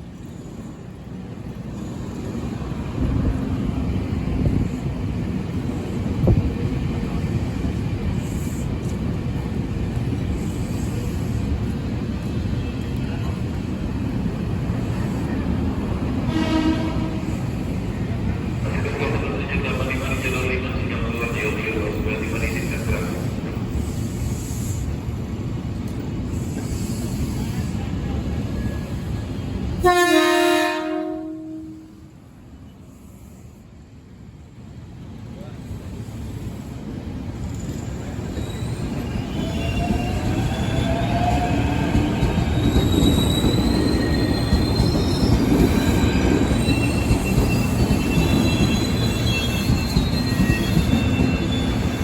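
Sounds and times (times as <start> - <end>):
electric train rumbling: 0.0 - 52.0
train horn blast: 16.2 - 17.4, 29.8 - 32.1.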